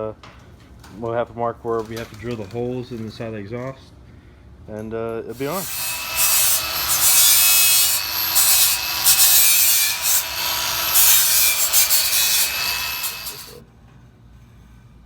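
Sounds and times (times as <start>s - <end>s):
angle grinder grinding metal: 5.4s - 13.6s.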